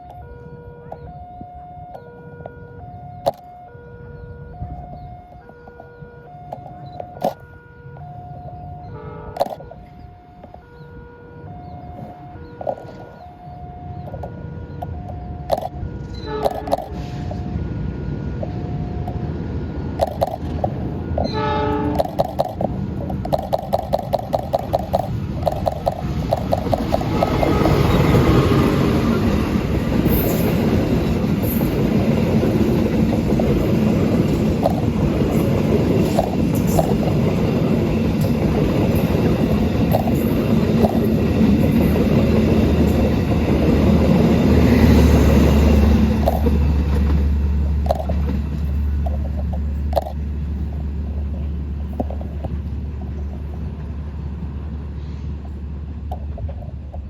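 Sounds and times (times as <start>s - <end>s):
train rumble: 0.0s - 57.0s
train horn blast: 8.8s - 9.5s, 16.0s - 18.4s, 21.2s - 22.2s, 27.0s - 29.2s
wheels clacking over rail joints: 9.2s - 10.8s, 12.0s - 57.0s.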